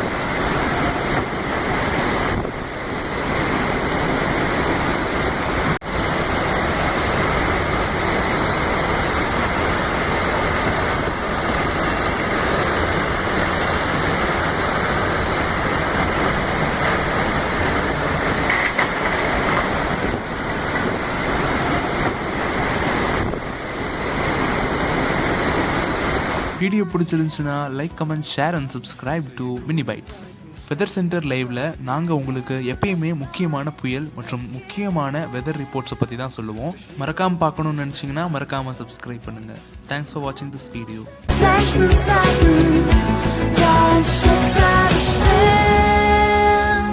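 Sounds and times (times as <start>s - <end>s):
heavy rain: 0.0s - 26.6s, 41.3s - 46.9s
strong storm wind: 0.0s - 26.6s.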